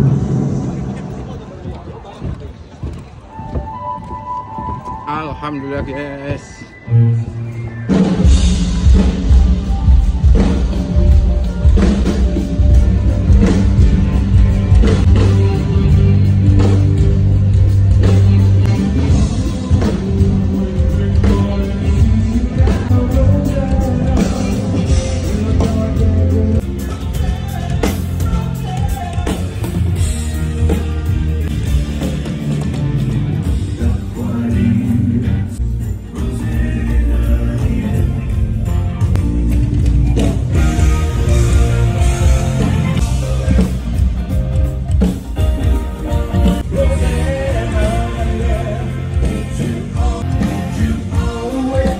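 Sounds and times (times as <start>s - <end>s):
heavy bass notes: 0.0s - 1.7s, 6.9s - 51.9s
rock band playing: 5.7s - 51.9s
person singing: 17.9s - 31.0s, 33.4s - 43.8s, 45.7s - 51.9s.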